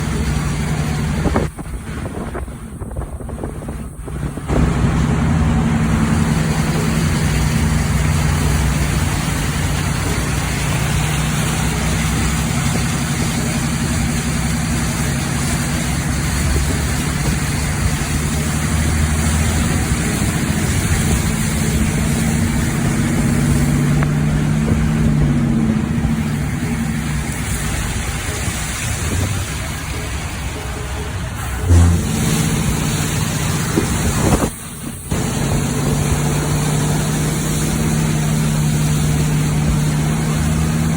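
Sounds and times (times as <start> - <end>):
constant rushing noise: 0.0 - 40.9
vehicle engine running: 0.0 - 40.9.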